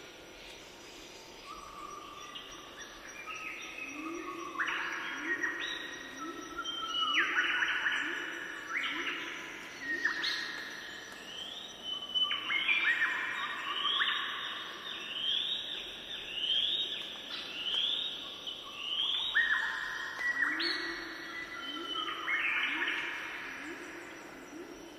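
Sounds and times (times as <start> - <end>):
birds singing: 0.9 - 24.9.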